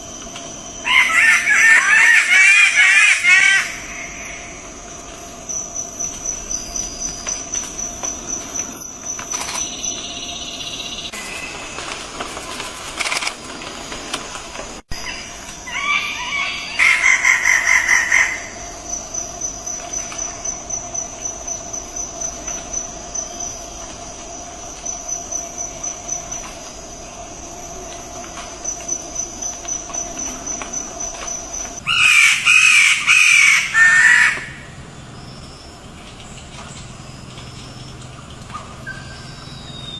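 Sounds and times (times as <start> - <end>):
birds calling loudly: 0.8 - 4.8, 14.9 - 21.6, 28.7 - 39.9.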